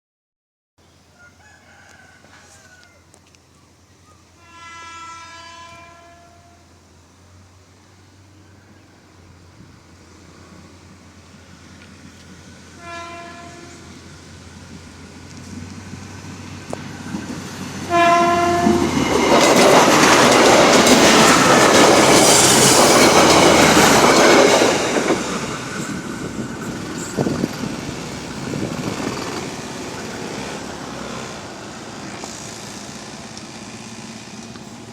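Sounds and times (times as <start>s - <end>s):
train rushing past: 4.3s - 34.9s
train horn blast: 4.4s - 6.8s, 12.8s - 14.0s, 17.8s - 19.0s
train wheels clattering on rails: 14.6s - 34.9s.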